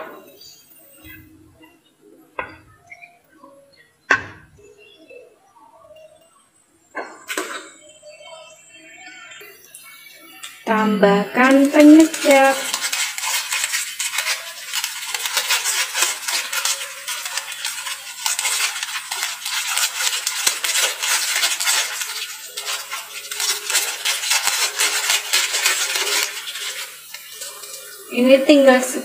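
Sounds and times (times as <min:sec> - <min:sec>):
food sizzling in oil: 0:09.3 - 0:29.0.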